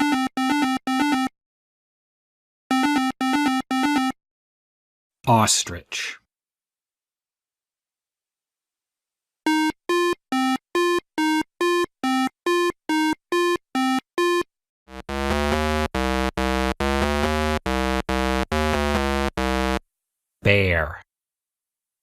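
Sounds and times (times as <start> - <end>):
electronic synthesizer music: 14.9 - 19.8.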